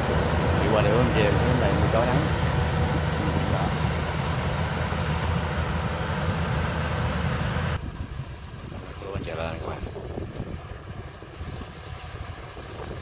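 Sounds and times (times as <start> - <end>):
combine harvester running: 0.0 - 13.0.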